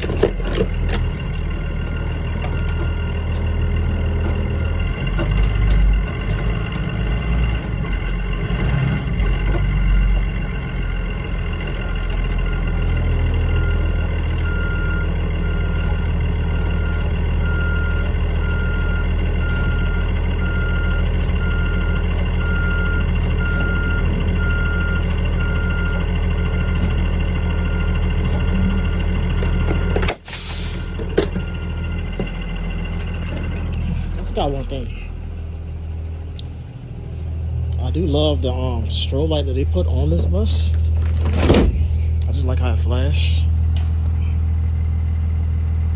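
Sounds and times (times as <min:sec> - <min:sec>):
bus engine idling: 0:00.0 - 0:45.9
electronic alarm beeping: 0:11.6 - 0:30.0.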